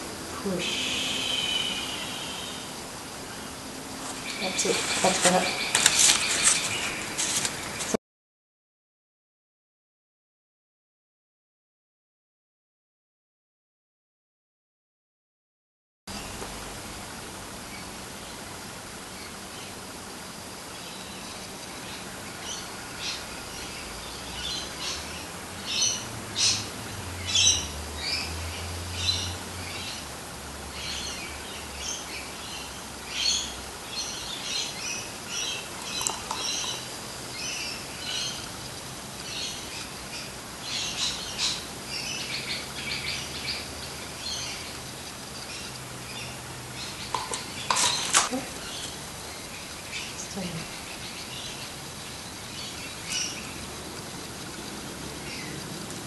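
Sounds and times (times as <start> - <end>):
background hiss: 0.0 - 8.0, 16.1 - 56.0
birds chirping: 0.0 - 8.0, 17.6 - 56.0.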